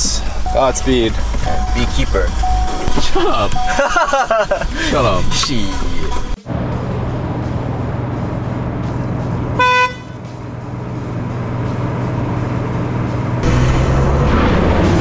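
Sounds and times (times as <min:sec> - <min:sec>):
car horn honk: 0:00.0 - 0:06.4, 0:09.6 - 0:10.3
vehicle engine running: 0:00.0 - 0:15.0.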